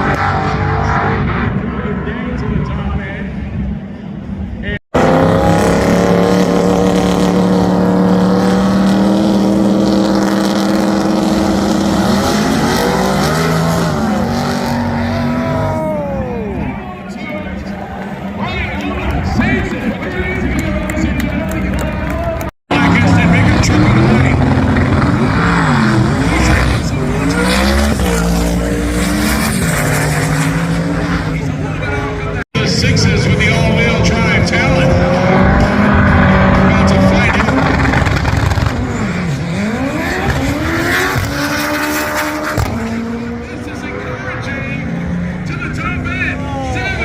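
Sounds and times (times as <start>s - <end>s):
car engine revving high: 4.9s - 16.7s, 22.7s - 47.0s.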